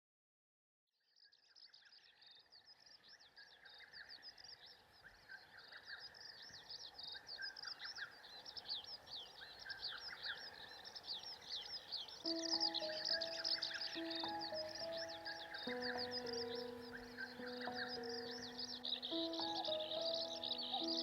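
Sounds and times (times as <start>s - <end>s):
small birds chirping: 1.1s - 21.0s.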